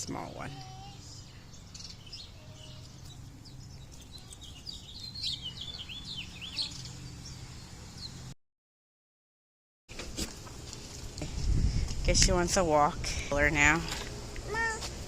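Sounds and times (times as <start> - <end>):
small birds chirping: 0.0 - 8.3.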